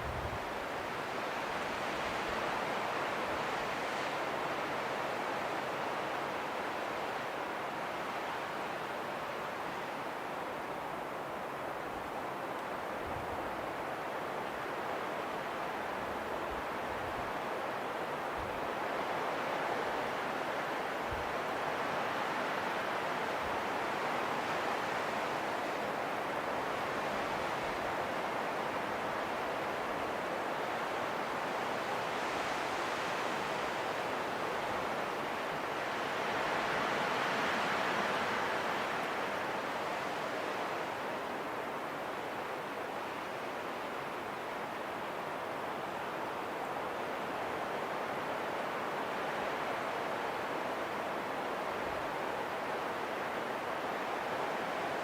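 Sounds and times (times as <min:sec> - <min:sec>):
wind blowing in gusts: 0:00.0 - 0:55.0.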